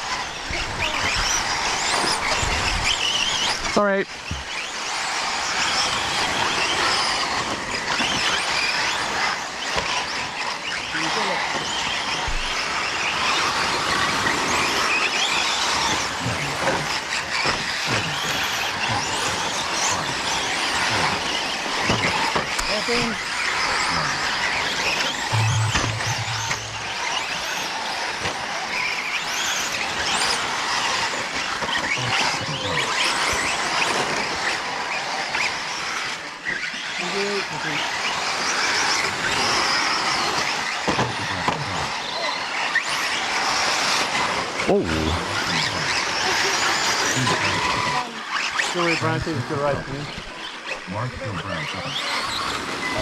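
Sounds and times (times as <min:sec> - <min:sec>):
rc truck motors whining: 0:00.0 - 0:53.0
low hum: 0:25.1 - 0:27.4.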